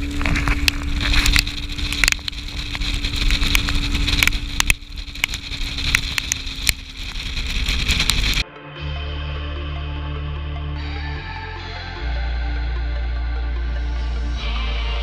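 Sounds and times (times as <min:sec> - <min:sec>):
motorboat engine running: 0:00.0 - 0:08.4
water rushing: 0:00.0 - 0:08.4.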